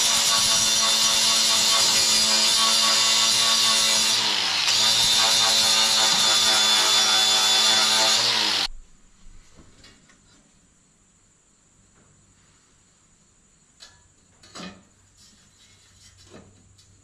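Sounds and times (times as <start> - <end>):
power tool motor running on steel: 0.0 - 8.7.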